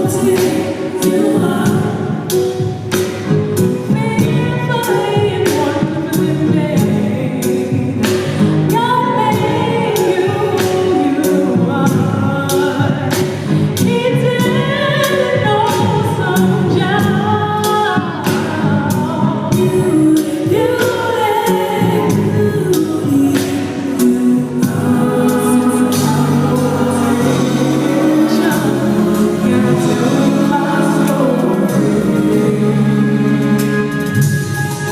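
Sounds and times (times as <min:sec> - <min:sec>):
gospel singing over a band: 0:00.0 - 0:34.9
drum and cymbal hits: 0:22.0 - 0:34.9.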